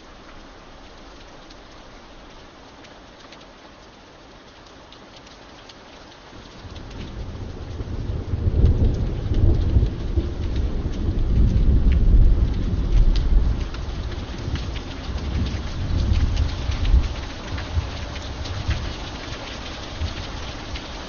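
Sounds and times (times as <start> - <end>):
steady rain: 0.0 - 21.0
thunder rumbling: 6.6 - 21.0.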